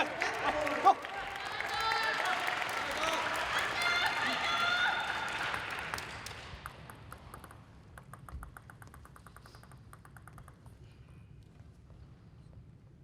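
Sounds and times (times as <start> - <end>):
applause: 0.0 - 7.0
table tennis ball bouncing: 6.6 - 10.9.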